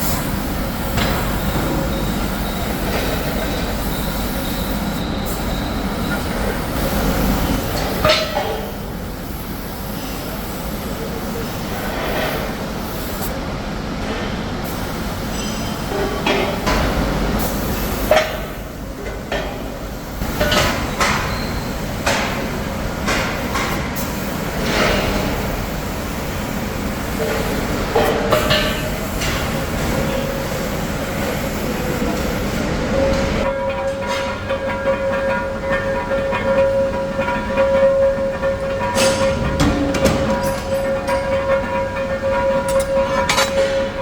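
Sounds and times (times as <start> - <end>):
factory machinery running: 0.0 - 44.0
sharp metal clanks: 37.6 - 44.0.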